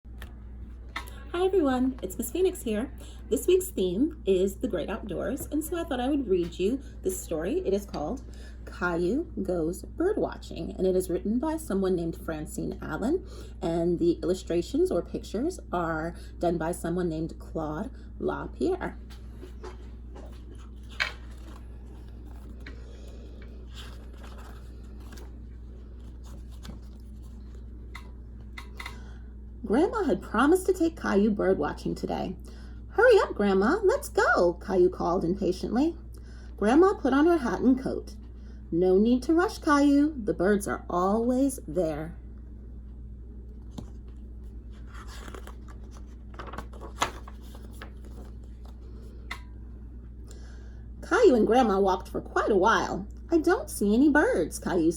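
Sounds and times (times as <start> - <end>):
steady low hum: 0.0 - 54.9
paper rustling: 19.1 - 28.0, 43.6 - 49.2.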